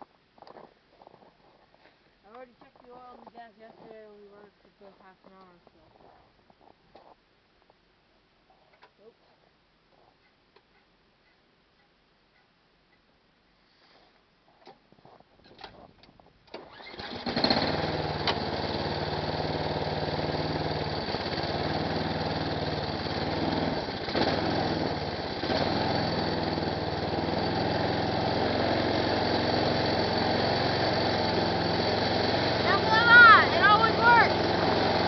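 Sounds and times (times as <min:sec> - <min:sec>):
snowblower engine running: 0:16.6 - 0:35.0.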